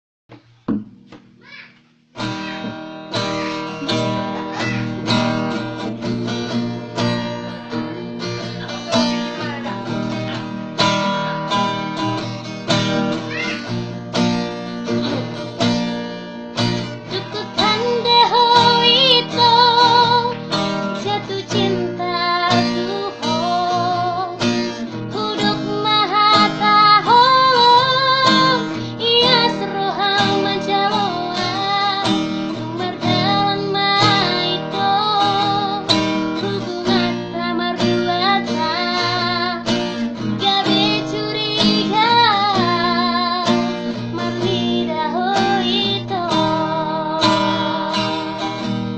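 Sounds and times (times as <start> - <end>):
acoustic guitar: 0.3 - 48.9
woman singing with vibrato: 16.9 - 48.7.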